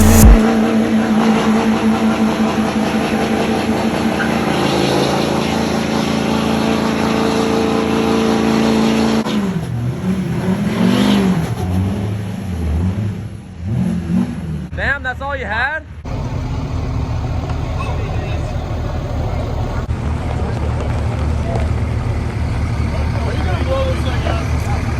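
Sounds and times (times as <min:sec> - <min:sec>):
truck engine revving: 0:00.0 - 0:14.7, 0:16.1 - 0:19.9.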